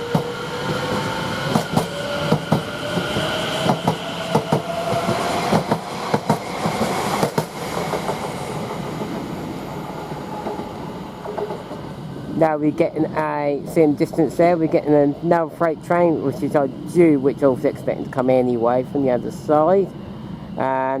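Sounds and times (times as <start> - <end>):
train wheels clacking on track: 0.0 - 9.3, 10.3 - 11.9
electric train traction whine: 0.0 - 12.4.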